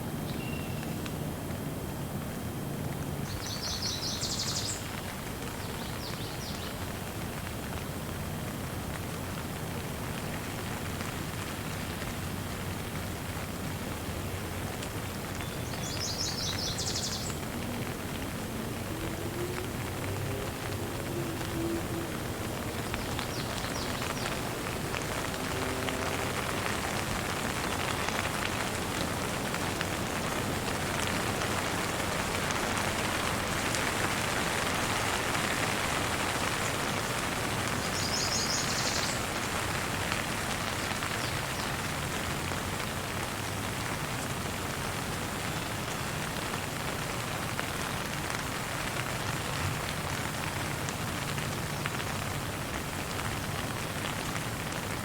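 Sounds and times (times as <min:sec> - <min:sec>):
steady rain falling: 0:00.0 - 0:55.0
bird chirping: 0:00.2 - 0:01.0, 0:15.4 - 0:17.4.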